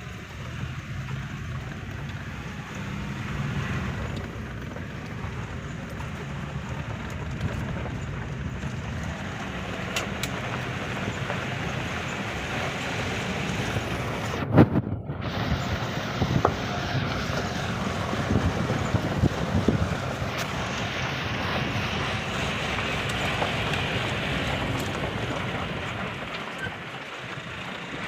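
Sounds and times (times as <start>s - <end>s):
moving vehicle rumble: 0.0s - 28.0s
wind buffeting microphone: 0.0s - 28.0s.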